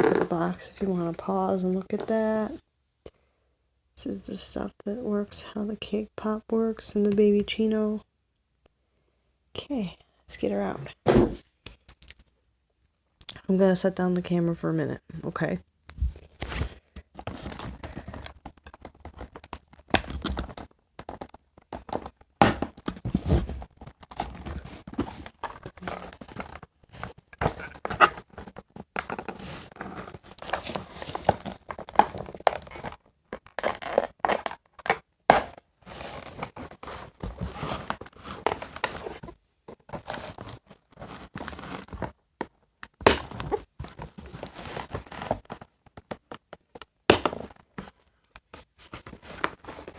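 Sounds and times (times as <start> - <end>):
cardboard box tearing and crinkling: 35.8 - 39.2.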